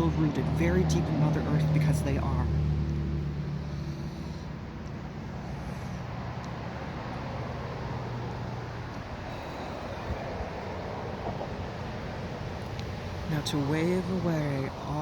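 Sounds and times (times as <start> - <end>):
car passing with tyre noise: 0.0 - 15.0
motor vehicle low hum: 0.0 - 15.0.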